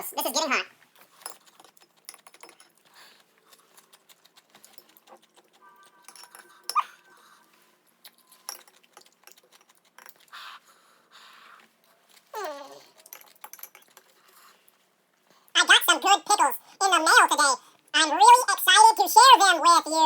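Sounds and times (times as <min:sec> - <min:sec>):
eating crunches and clicks: 0:01.2 - 0:06.8, 0:08.0 - 0:10.5.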